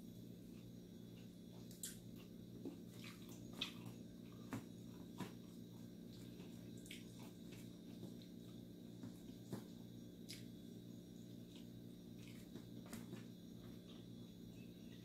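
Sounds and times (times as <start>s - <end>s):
person chewing: 0.5s - 8.6s.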